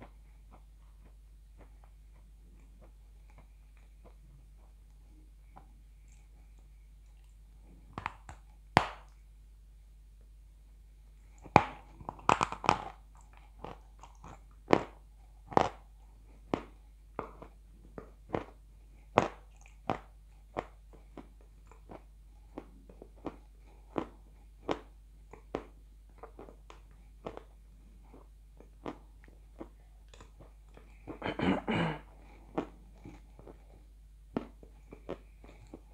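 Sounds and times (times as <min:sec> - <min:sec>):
chalk crunching while chewed: 0:11.4 - 0:31.2, 0:32.2 - 0:35.9.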